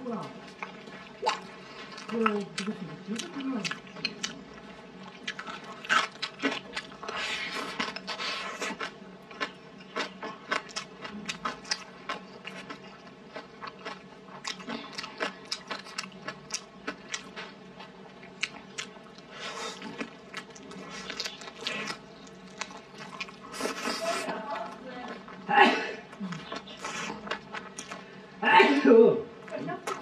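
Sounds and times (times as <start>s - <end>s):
person chewing crunchy food: 0.4s - 28.1s.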